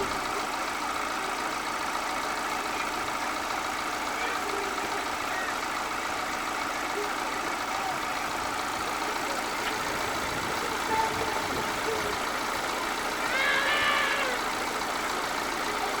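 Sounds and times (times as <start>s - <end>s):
car engine idling: 0.0s - 16.0s
high rising and falling call: 10.6s - 14.8s.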